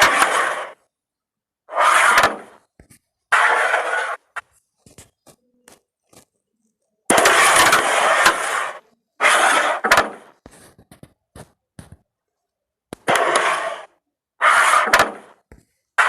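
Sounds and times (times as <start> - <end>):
pieces sliding over board: 0.0 - 0.8, 1.7 - 5.1, 7.1 - 11.1, 13.0 - 15.6.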